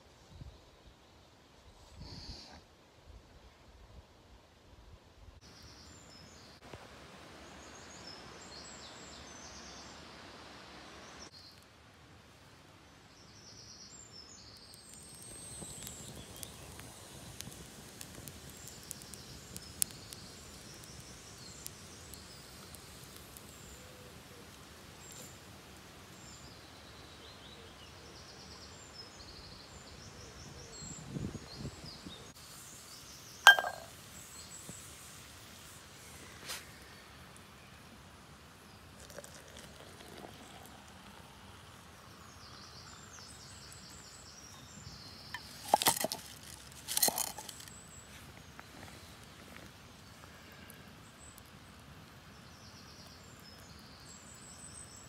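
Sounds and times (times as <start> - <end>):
faint steady hiss: 0.0 - 55.0
small birds chirping: 13.2 - 24.0
sharp ringing clink: 33.5 - 33.9.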